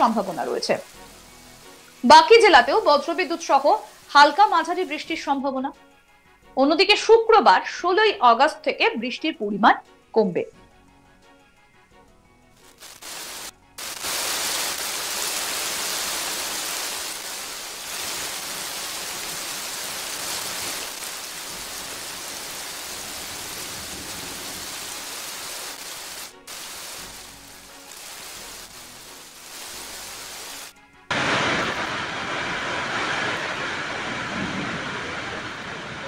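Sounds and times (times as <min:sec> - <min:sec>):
heavy rain falling: 0:00.0 - 0:05.2, 0:12.6 - 0:36.0.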